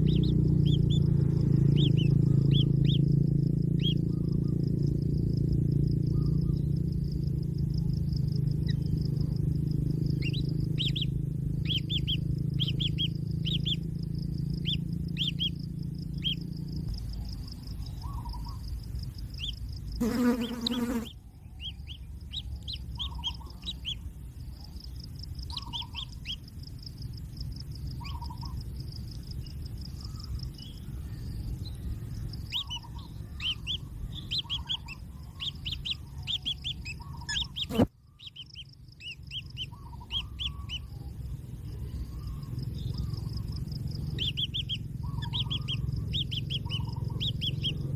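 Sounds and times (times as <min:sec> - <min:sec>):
low hum: 0:00.0 - 0:19.9
birds chirping: 0:00.0 - 0:47.9
high insect drone: 0:00.0 - 0:47.9.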